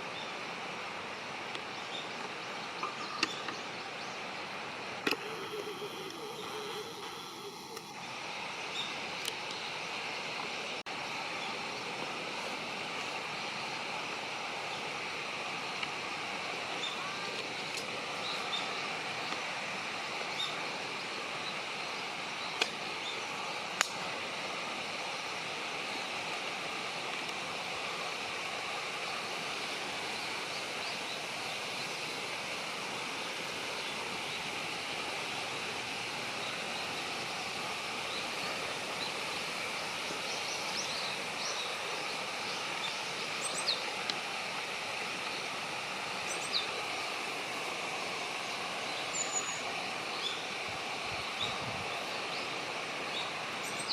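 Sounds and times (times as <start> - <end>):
outdoor background hiss: 0.0 - 53.9
sharp clicks: 5.0 - 6.2.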